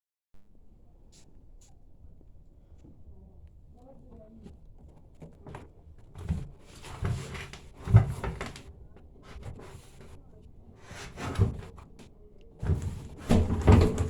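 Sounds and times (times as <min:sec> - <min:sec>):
objects knocking and clunking: 0:04.8 - 0:08.7, 0:12.6 - 0:14.0.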